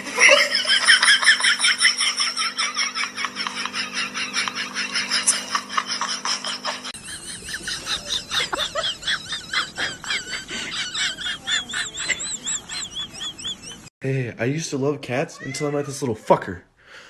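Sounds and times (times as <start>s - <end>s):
high-pitched chirping and squeaking: 11.4s - 13.9s.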